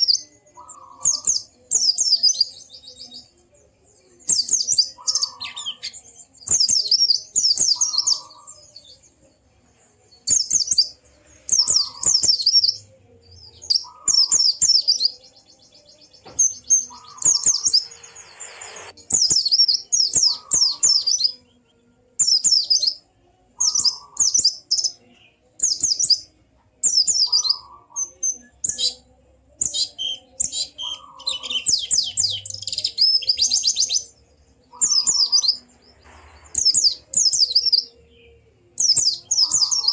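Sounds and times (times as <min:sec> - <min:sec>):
bird chirping rapidly: 0:16.5 - 0:21.3, 0:34.7 - 0:35.7.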